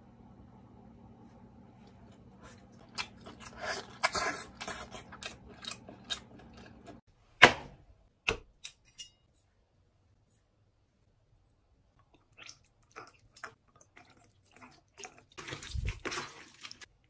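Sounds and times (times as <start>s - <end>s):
low steady hum: 0.0s - 7.0s
wet smacking chewing: 1.8s - 7.0s, 12.0s - 16.9s.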